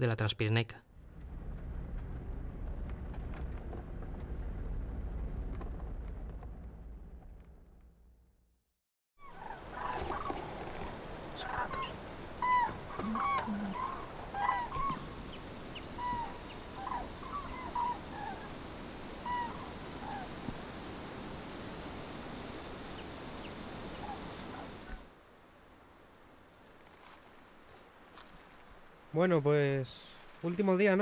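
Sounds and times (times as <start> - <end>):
birds calling: 9.2 - 25.1.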